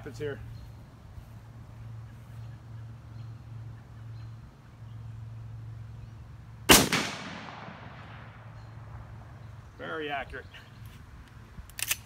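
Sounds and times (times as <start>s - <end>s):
rifle shot with echo: 6.7s - 8.7s.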